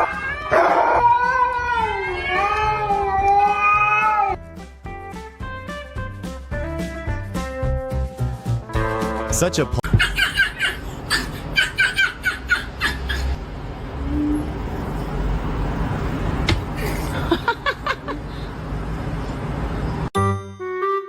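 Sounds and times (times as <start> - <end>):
person laughing: 9.8 - 13.4, 16.8 - 18.4.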